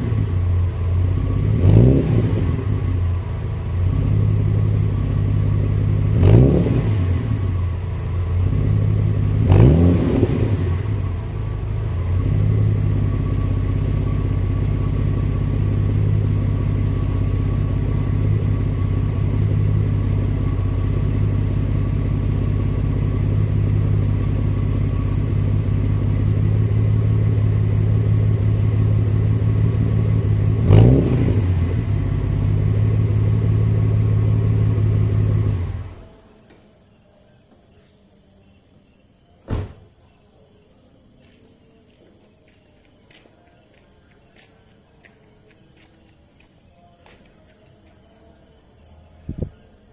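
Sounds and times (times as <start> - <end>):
car exhaust idling: 0.0 - 36.1.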